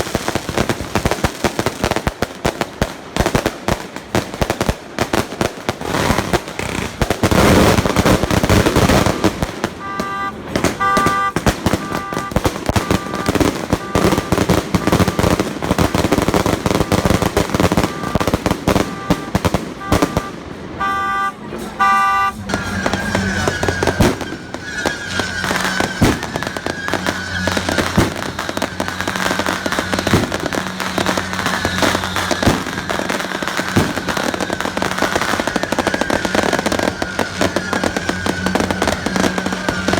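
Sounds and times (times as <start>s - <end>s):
firecrackers crackling: 0.0s - 39.9s
short repeated tone: 20.1s - 22.5s.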